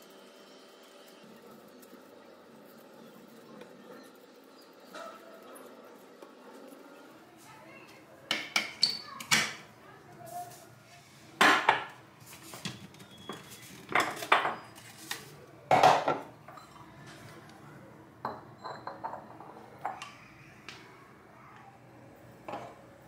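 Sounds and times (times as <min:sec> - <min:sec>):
dishes and utensils clinking: 0:12.6 - 0:14.9, 0:15.7 - 0:17.2, 0:18.2 - 0:20.2.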